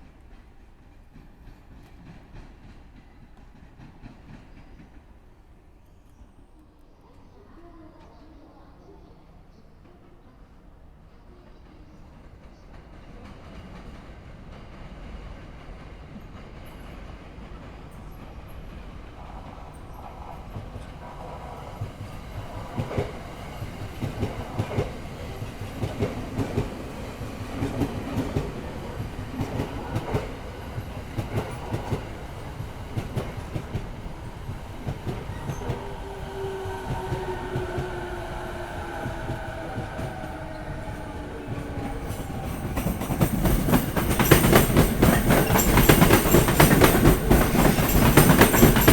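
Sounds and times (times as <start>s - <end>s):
falling whine of train: 0.0s - 48.9s
train rushing past: 10.2s - 48.9s
train clattering over rail joints: 41.6s - 48.9s.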